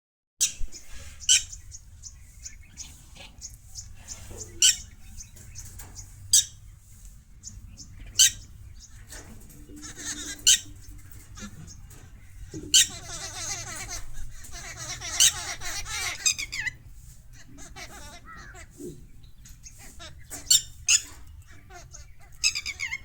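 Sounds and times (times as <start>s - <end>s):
mynas shrill calls: 0.4s - 6.7s, 7.5s - 18.8s, 19.4s - 23.0s
soft bird chirps: 0.4s - 23.0s.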